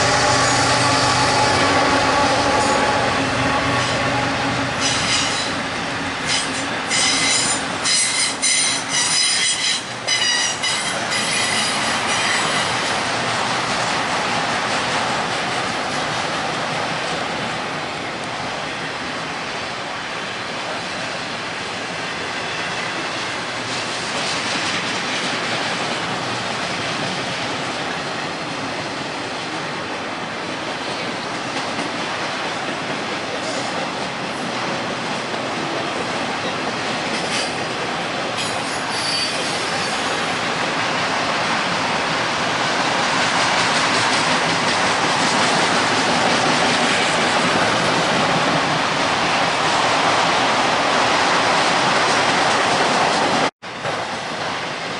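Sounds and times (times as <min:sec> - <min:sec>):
railroad cars rolling on rails: 0:00.0 - 0:54.9
high wheel squeal: 0:38.4 - 0:40.3.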